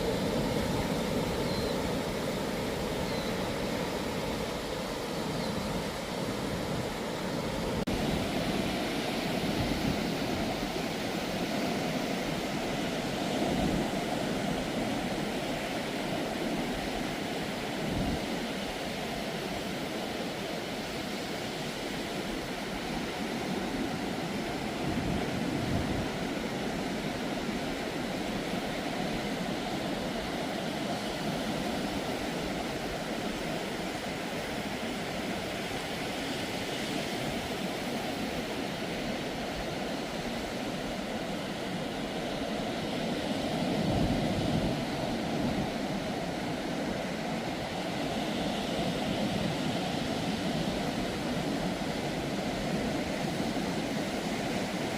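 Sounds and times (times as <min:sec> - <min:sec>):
ocean surf washing onto beach: 0:00.0 - 0:54.9
waves breaking: 0:00.0 - 0:54.9.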